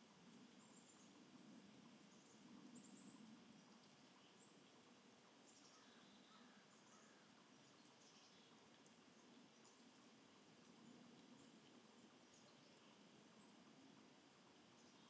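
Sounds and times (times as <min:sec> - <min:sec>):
faint bird chirps: 0:05.4 - 0:09.9.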